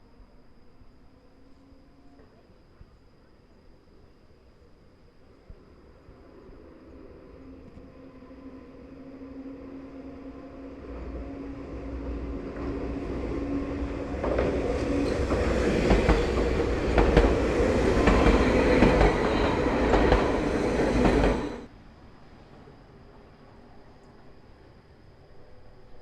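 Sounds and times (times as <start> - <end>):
train passing: 5.8 - 21.7
train wheels clicking over rail joints: 12.4 - 21.7.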